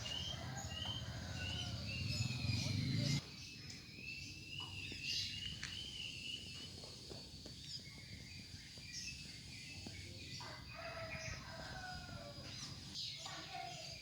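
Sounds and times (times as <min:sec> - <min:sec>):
rooster crowing: 0:00.0 - 0:03.2, 0:10.4 - 0:12.6.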